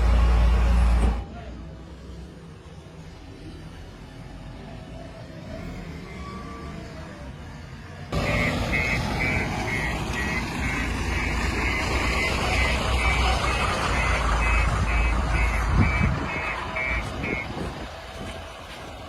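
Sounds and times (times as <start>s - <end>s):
heavy diesel engines running: 0.0s - 19.0s
reversing alarm beeping: 8.2s - 17.7s.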